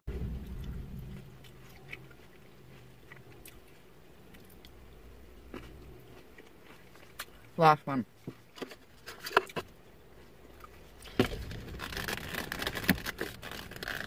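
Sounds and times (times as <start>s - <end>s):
brief low rumble: 0.1s - 2.2s
person chewing grapes: 0.1s - 7.6s, 10.2s - 14.0s.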